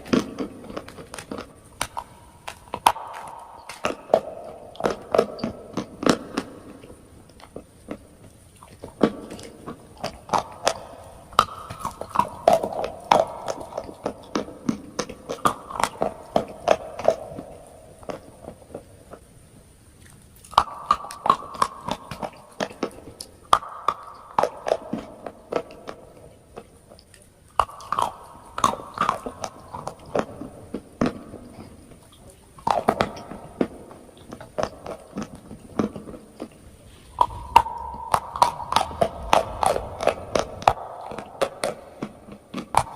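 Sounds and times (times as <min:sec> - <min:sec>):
person chewing crunchy chalk: 0:34.2 - 0:42.9.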